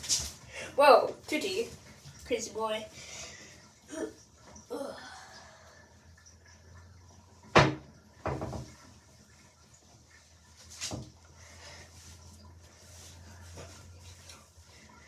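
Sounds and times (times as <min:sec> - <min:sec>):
soft knocks: 0:07.5 - 0:08.8.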